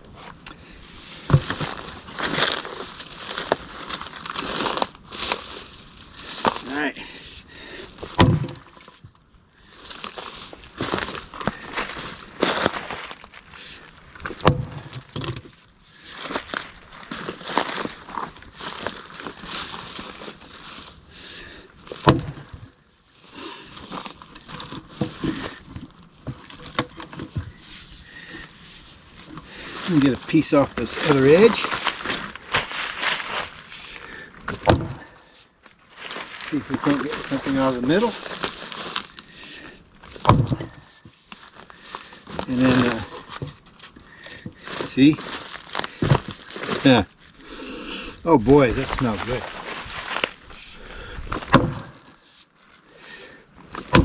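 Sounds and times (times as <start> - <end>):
wood cracking and tearing: 0.0 - 52.7, 53.6 - 54.0
axe striking wood: 8.2 - 8.6, 14.4 - 14.8, 22.0 - 22.4, 34.5 - 35.0, 51.3 - 51.9.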